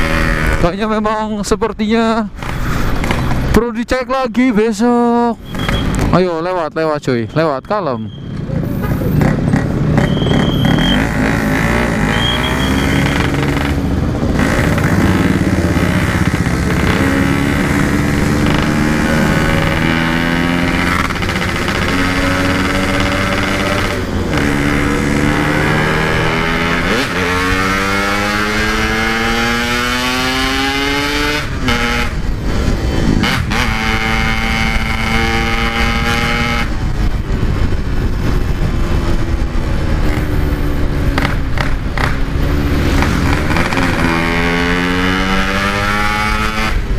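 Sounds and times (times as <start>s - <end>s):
short high beeps: 5.4s - 6.0s, 7.2s - 8.4s, 10.0s - 11.2s, 12.0s - 13.3s
two-stroke motorcycle engine: 9.2s - 46.9s.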